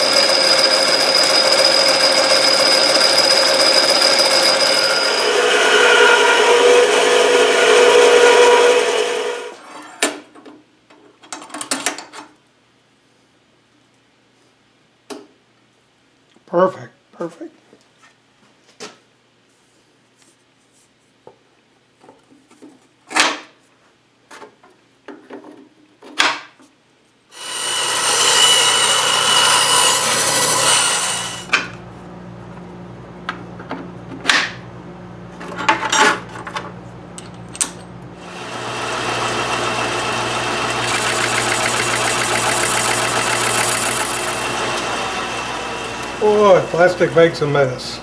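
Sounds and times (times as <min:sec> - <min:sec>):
machine tool motor running: 0:00.0 - 0:09.5, 0:27.4 - 0:31.5, 0:38.2 - 0:47.4
machine cutting plastic: 0:27.4 - 0:31.5, 0:38.3 - 0:47.1.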